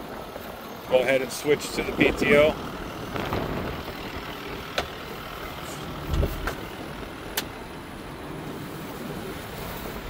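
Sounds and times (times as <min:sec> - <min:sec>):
diesel engine idling: 0:00.0 - 0:08.9
dull thump: 0:06.1 - 0:06.6.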